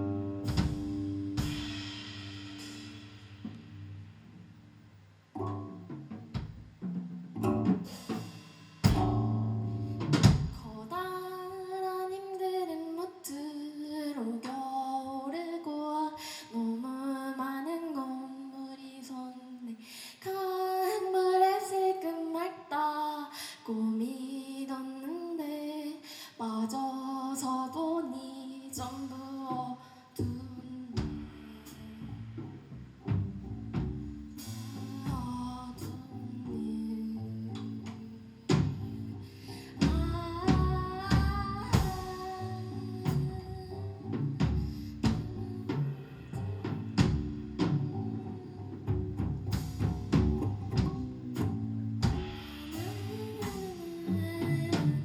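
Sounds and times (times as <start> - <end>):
bass notes: 0.0 - 10.8, 28.8 - 55.0
drum hits: 0.4 - 3.6, 5.9 - 10.8, 39.8 - 43.4
person singing: 34.5 - 47.0, 52.2 - 55.0.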